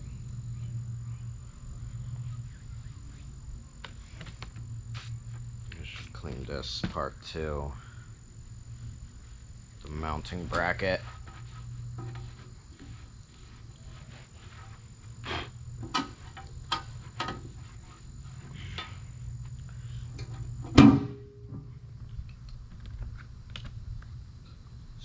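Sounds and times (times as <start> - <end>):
loud metallic clunk: 20.7 - 21.7.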